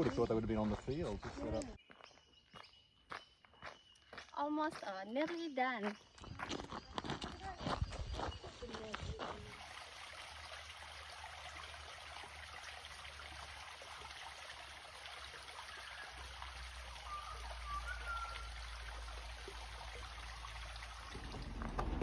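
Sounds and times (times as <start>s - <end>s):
high bird chirps: 17.0s - 19.1s.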